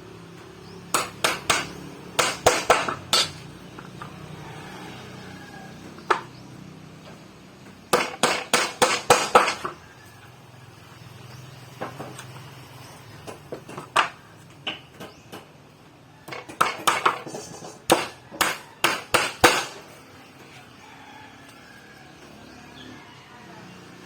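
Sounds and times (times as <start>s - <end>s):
tools and wood clattering: 0.9s - 4.2s, 5.8s - 6.4s, 7.0s - 10.0s, 11.7s - 15.6s, 16.2s - 20.6s.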